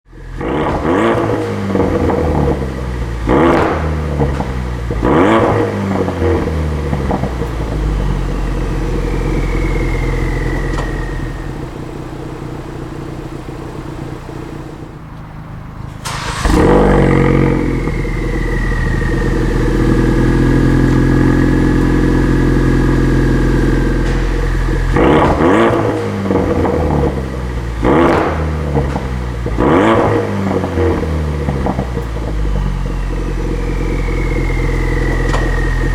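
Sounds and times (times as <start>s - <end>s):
car engine revving: 0.1s - 35.9s
faint falling whine: 7.4s - 12.7s, 32.3s - 35.9s.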